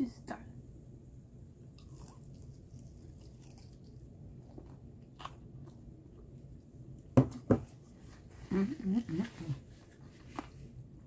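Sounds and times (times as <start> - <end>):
person chewing food: 1.8 - 6.8.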